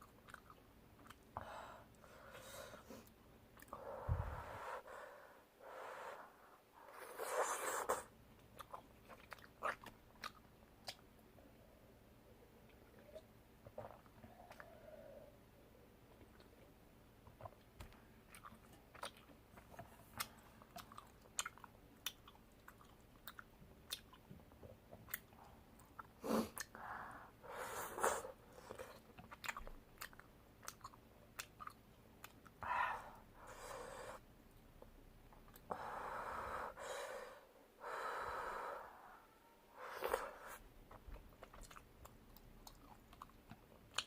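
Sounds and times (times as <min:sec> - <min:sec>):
person chewing close to microphone: 0:00.0 - 0:01.4, 0:08.4 - 0:11.0, 0:12.6 - 0:14.9, 0:16.1 - 0:26.8, 0:28.5 - 0:32.6, 0:40.5 - 0:44.0.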